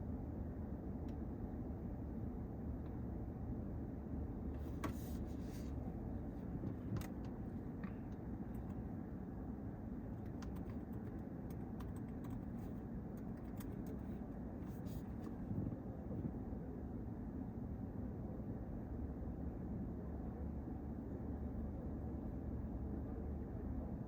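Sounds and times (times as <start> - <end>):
road traffic rumble: 0.0 - 24.0
light clicks and ticks: 10.2 - 14.1.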